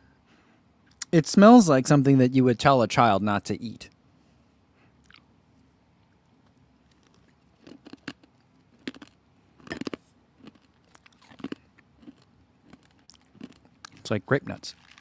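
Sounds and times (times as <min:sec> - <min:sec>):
chewing crunchy pellets: 0:05.0 - 0:05.3, 0:06.1 - 0:15.0.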